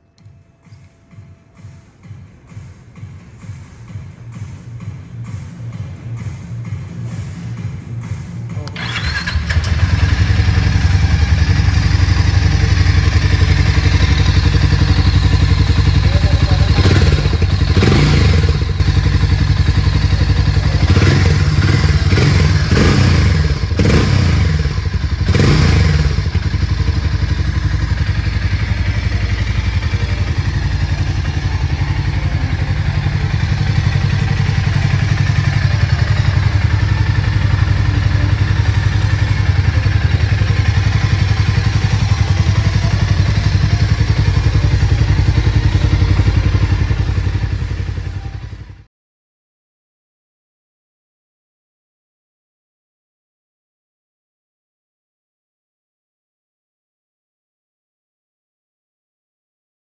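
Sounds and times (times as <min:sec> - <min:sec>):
motorcycle engine idling: 0:08.6 - 0:48.9.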